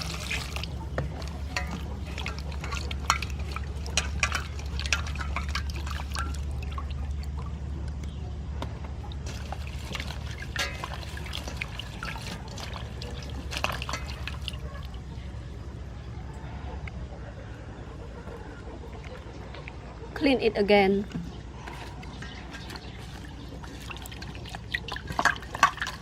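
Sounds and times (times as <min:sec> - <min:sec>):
water splashing in a basin: 0:00.0 - 0:08.0, 0:08.8 - 0:15.7, 0:21.1 - 0:26.0.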